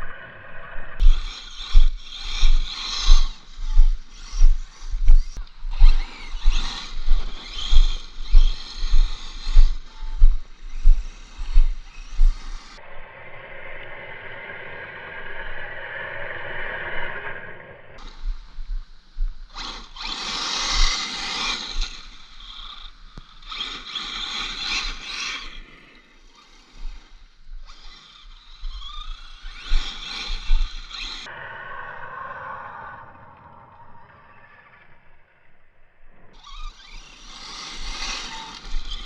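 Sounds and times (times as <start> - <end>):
rc truck motor whining: 1.0 - 12.9, 19.4 - 31.3, 33.7 - 39.0.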